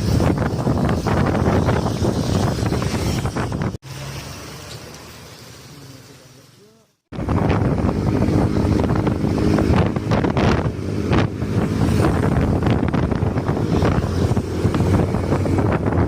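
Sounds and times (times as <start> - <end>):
wind buffeting microphone: 0.0 - 3.8, 7.1 - 16.0
vehicle engine running: 7.1 - 16.0.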